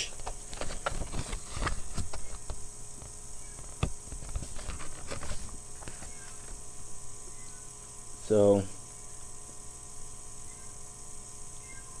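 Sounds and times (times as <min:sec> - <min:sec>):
faint electrical hum: 0:00.0 - 0:12.0
packaging being handled: 0:00.2 - 0:06.6.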